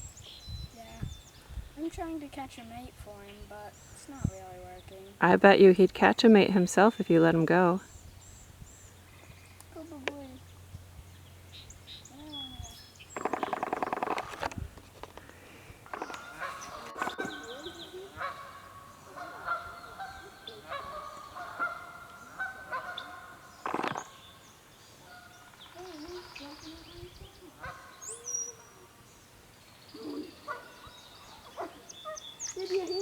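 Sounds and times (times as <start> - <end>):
small birds chirping: 0.0 - 33.0
geese honking: 15.8 - 24.3.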